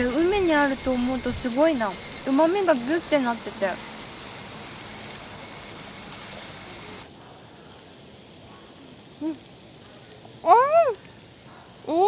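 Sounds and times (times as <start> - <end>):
high-pitched insect drone: 0.0 - 7.2
soft hiss: 2.2 - 12.0.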